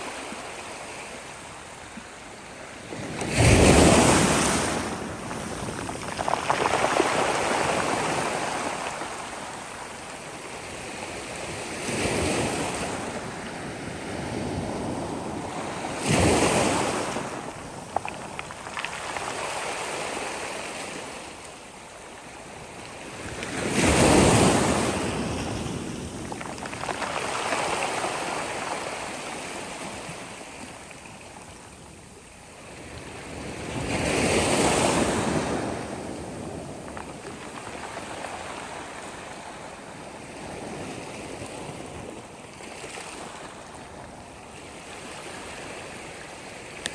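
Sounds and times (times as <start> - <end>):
sea waves breaking on shore: 2.6 - 21.4, 23.0 - 31.5.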